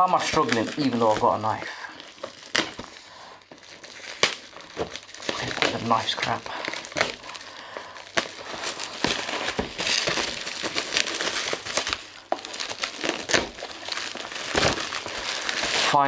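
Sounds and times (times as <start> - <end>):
knife hacking open packaging: 0.0 - 16.0.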